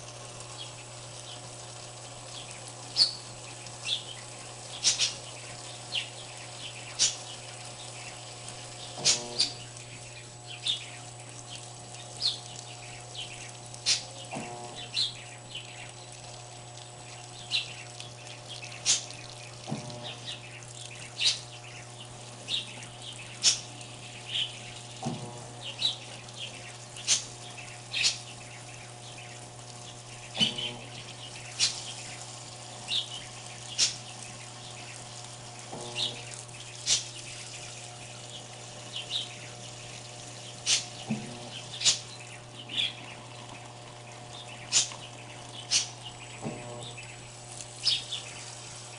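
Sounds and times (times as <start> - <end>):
washing machine hum: 0.0 - 48.9
water splashing: 11.0 - 48.9.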